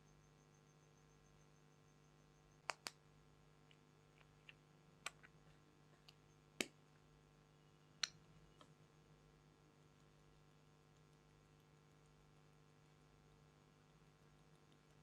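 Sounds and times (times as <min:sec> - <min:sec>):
faint steady hum: 0:00.0 - 0:15.0
sharp clicks: 0:02.6 - 0:03.0.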